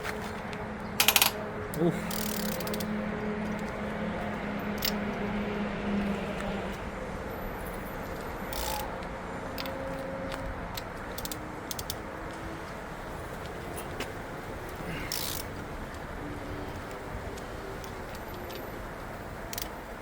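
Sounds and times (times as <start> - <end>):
metal clicks of hand tools: 1.0 - 2.9, 4.8 - 5.0, 8.2 - 8.9, 9.6 - 9.8, 10.8 - 12.0, 14.7 - 15.5, 19.5 - 19.8.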